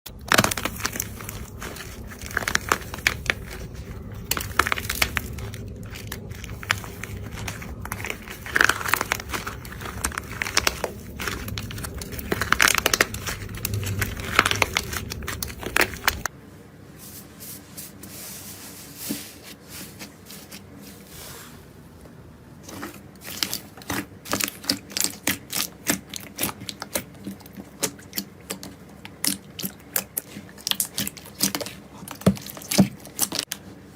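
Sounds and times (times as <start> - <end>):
material crackling and crunching: 0.1 - 16.3
steady low hum: 0.1 - 17.7.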